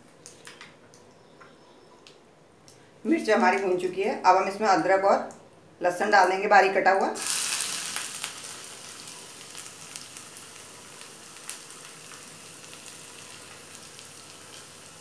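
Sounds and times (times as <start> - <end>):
ginger and garlic sizzling in ghee: 7.2 - 15.0.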